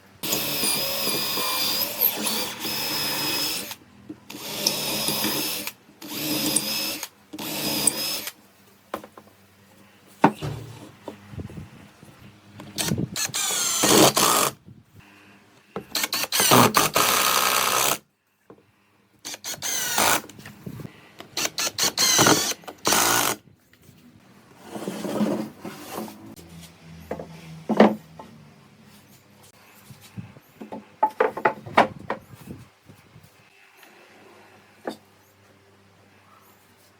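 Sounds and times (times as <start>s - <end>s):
power drill whirring: 0.2s - 8.4s, 12.6s - 14.6s, 15.9s - 18.0s, 19.2s - 20.3s, 21.2s - 23.4s.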